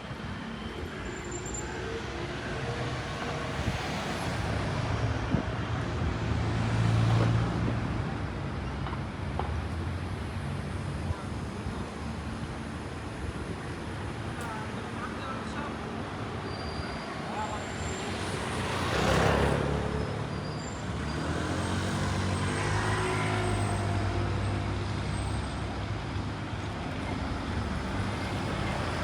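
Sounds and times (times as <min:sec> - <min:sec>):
city traffic noise: 0:00.0 - 0:29.0.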